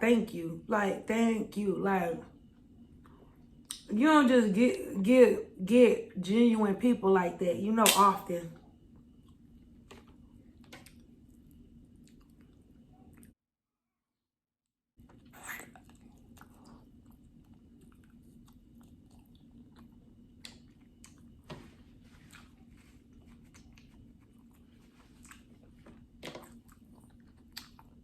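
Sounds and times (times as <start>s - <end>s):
steady low hum: 0.0s - 13.4s, 15.0s - 28.0s
wet chewing with crunches: 8.7s - 13.4s, 15.0s - 28.0s.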